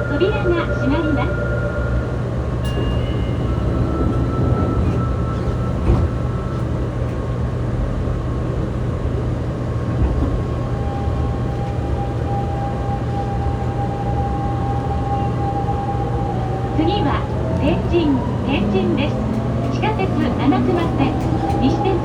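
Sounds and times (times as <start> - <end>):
subway car hum: 0.0 - 22.0
train inverter whine: 0.0 - 22.0.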